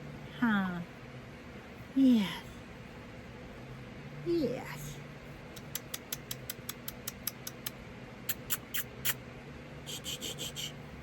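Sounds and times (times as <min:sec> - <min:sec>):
mouth clicks and smacks: 0:05.5 - 0:09.2.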